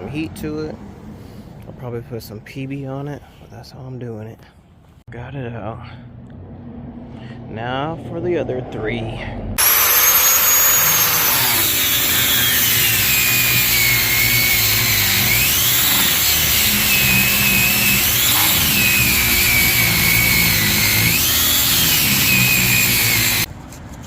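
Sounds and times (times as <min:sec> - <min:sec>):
power saw cutting metal: 0:09.6 - 0:23.5.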